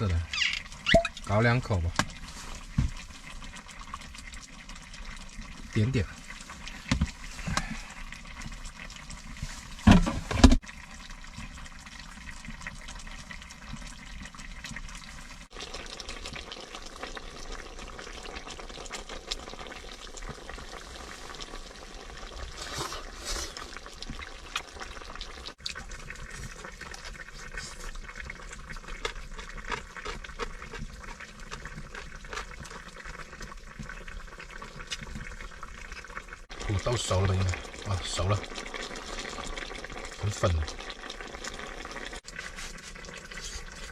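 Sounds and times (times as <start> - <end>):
food sizzling on stove: 36.4 - 43.9.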